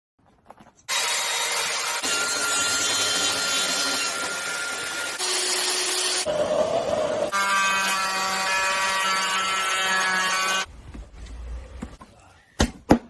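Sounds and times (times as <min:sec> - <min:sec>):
power tools running loudly: 0:00.9 - 0:09.3.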